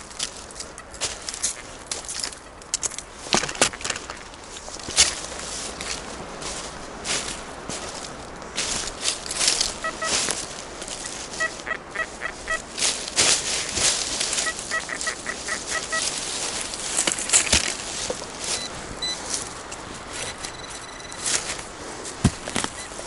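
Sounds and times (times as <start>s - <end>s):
leaves crunching: 0.0s - 23.0s
metal detector beeps: 9.7s - 10.2s, 11.0s - 12.6s, 14.4s - 16.1s, 18.5s - 19.4s, 20.1s - 21.6s, 22.6s - 23.0s.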